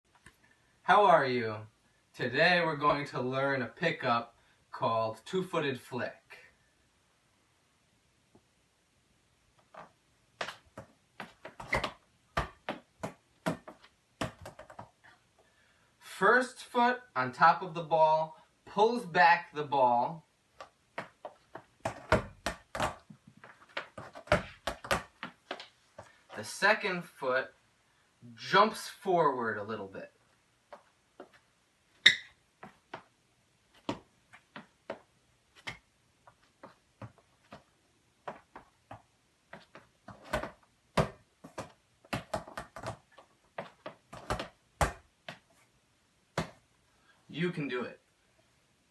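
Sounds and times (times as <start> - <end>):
light footfalls on indoor floor: 9.6 - 15.2, 20.6 - 26.2, 30.7 - 45.7
soccer ball touches: 9.8 - 15.0, 20.6 - 25.6, 38.3 - 45.5, 46.3 - 46.6.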